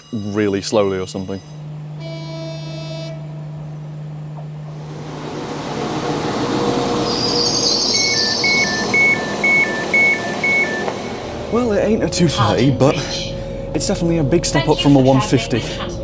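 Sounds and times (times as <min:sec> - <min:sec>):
train running and braking: 0:01.0 - 0:16.0
two-note door warning beep: 0:07.9 - 0:11.0.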